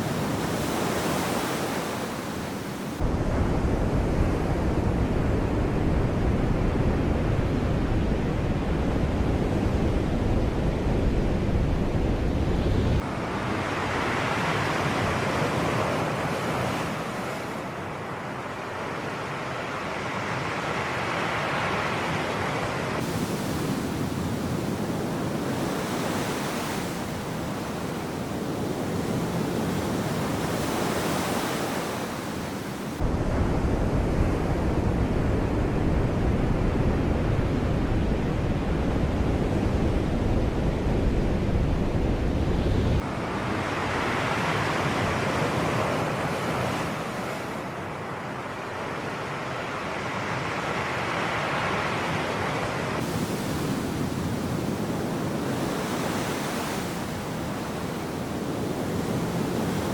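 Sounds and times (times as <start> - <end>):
wind on microphone rumble: 3.0 - 13.1, 33.0 - 43.2
sea surf breaking: 52.6 - 59.9.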